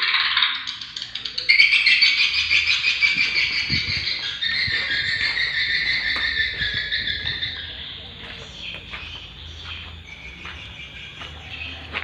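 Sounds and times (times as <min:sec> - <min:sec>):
swiftlets twittering: 0:00.0 - 0:08.2.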